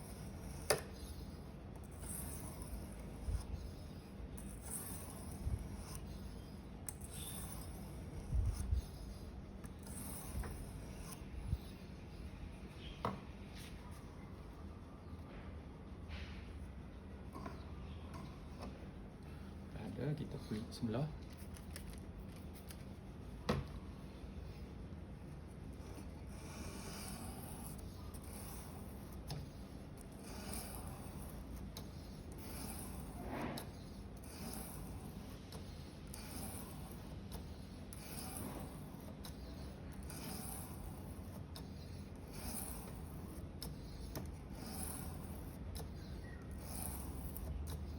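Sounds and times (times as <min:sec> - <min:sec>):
knife rubbing on whetstone: 0:00.0 - 0:13.0, 0:25.6 - 0:47.9.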